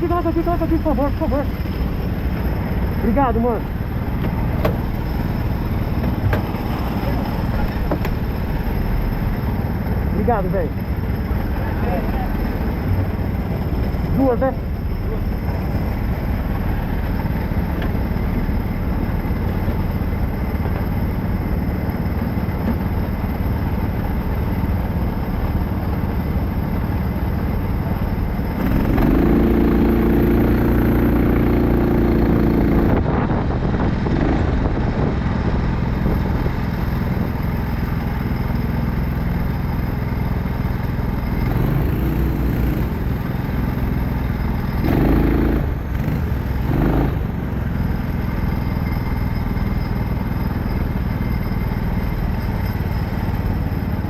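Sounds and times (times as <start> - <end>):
kart engines running: 0.0 - 33.1, 33.9 - 54.0
nearer kart engine note: 28.6 - 33.0.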